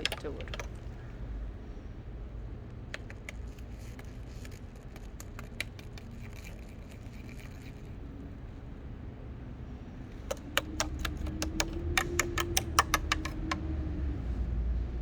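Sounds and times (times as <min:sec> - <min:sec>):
faint clicks and scrapes: 0:02.9 - 0:08.2.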